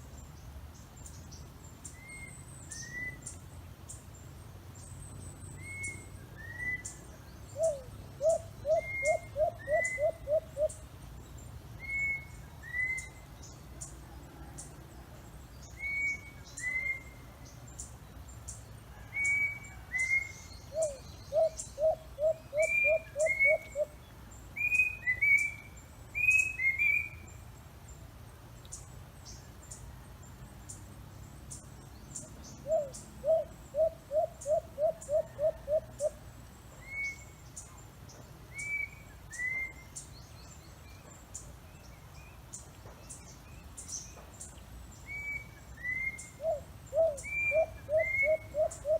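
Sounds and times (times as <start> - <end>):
bird hoot-like notes: 20.7 - 23.9, 46.1 - 48.9.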